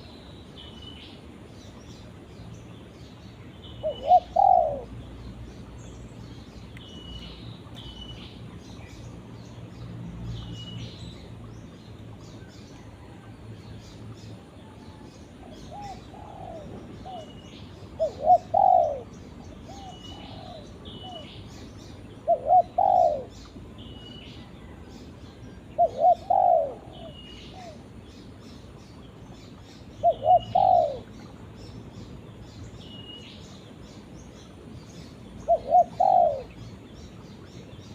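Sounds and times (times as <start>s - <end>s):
dove cooing: 3.8s - 5.0s, 14.6s - 17.4s, 18.0s - 21.3s, 22.2s - 23.4s, 25.8s - 27.8s, 30.0s - 31.1s, 35.5s - 36.6s.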